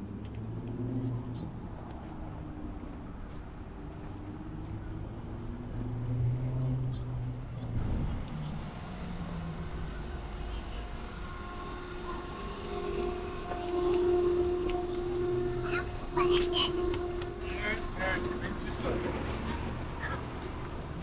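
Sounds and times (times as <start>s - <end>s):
low traffic rumble: 0.0s - 21.0s
vehicle engine passing: 4.0s - 21.0s.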